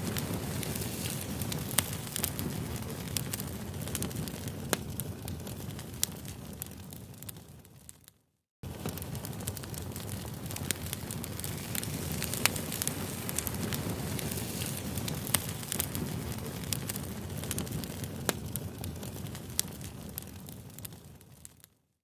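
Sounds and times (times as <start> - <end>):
campfire crackling and popping: 0.0 - 21.8.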